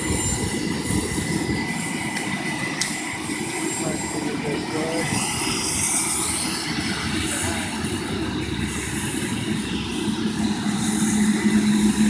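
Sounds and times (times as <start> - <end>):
helicopter engine hiss: 0.0 - 12.0
helicopter rotor beat: 0.0 - 12.0.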